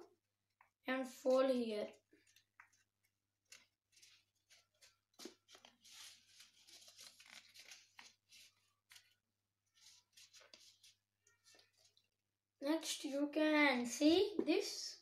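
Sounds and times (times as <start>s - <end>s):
paper rustling and crinkling: 2.1s - 12.0s.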